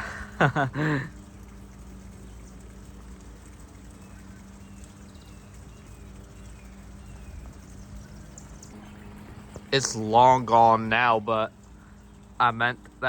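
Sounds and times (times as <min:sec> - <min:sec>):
constant hum: 0:00.0 - 0:13.0
low outdoor rumble: 0:00.0 - 0:13.0
faint bird chirps: 0:02.1 - 0:10.7
person's voice: 0:09.8 - 0:11.5.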